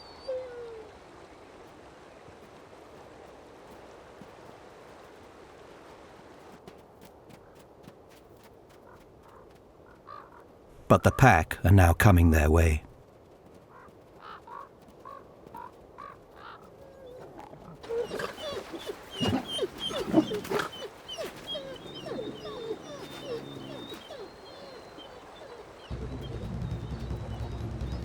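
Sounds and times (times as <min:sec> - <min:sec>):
wolves yelping and whining: 0:16.9 - 0:25.9.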